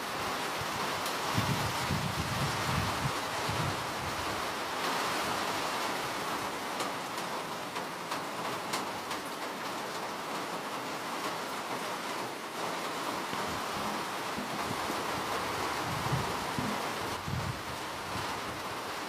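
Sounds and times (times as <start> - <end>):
steady rain hiss: 0.0 - 19.0
raindrop ticks: 6.6 - 11.7.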